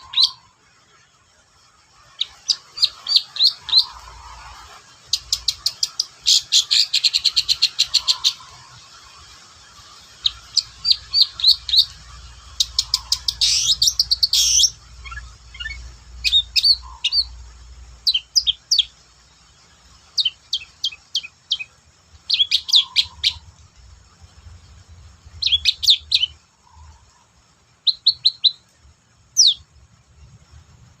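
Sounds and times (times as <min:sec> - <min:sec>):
bird chattering song: 0:00.0 - 0:00.6, 0:02.0 - 0:19.0, 0:20.0 - 0:23.6, 0:25.3 - 0:27.2, 0:27.8 - 0:28.7, 0:29.3 - 0:29.7.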